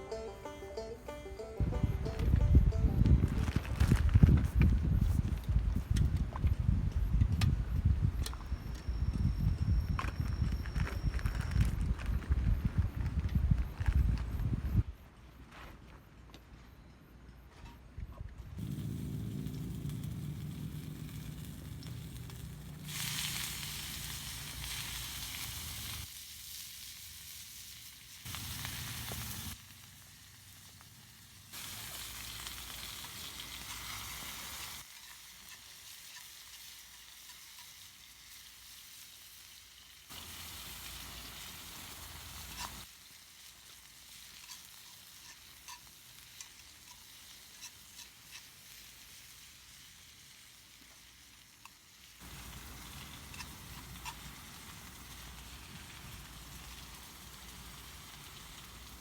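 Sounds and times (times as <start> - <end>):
food sizzling in a skillet: 18.6 - 59.0.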